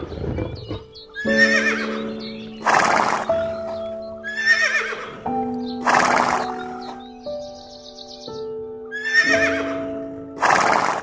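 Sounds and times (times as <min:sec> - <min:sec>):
background music with chords: 0:00.1 - 0:11.0
horse whinnying: 0:00.4 - 0:02.0, 0:02.6 - 0:03.4, 0:04.2 - 0:05.2, 0:05.8 - 0:06.7, 0:08.9 - 0:09.8.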